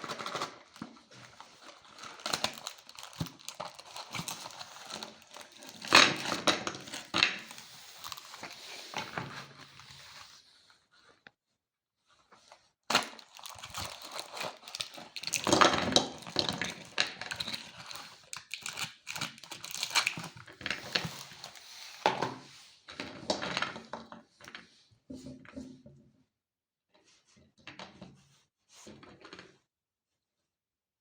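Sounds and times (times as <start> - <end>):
plastic packaging crinkling: 0.0 - 10.0, 12.9 - 22.0.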